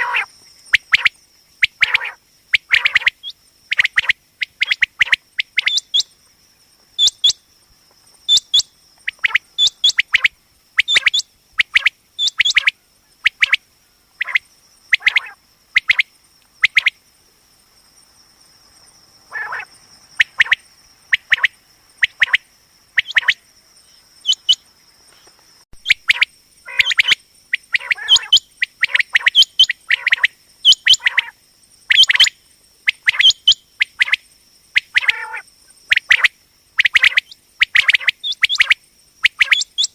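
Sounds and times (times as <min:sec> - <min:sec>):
quail calling: 0:00.0 - 0:06.1, 0:07.0 - 0:07.4, 0:08.3 - 0:13.6, 0:14.2 - 0:16.9, 0:19.3 - 0:22.4, 0:23.0 - 0:23.4, 0:24.2 - 0:24.6, 0:25.8 - 0:32.3, 0:32.9 - 0:34.2, 0:34.8 - 0:39.9.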